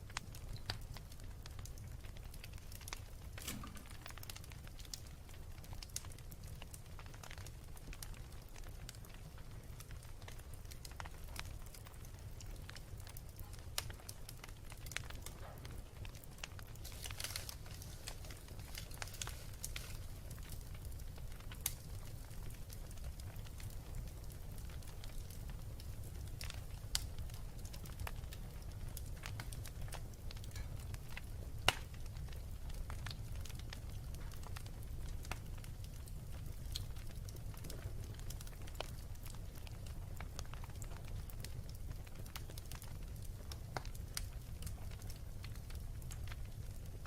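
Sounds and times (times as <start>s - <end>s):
wood fire crackling: 0.0s - 47.0s
fire hissing: 3.3s - 4.5s, 16.7s - 21.0s.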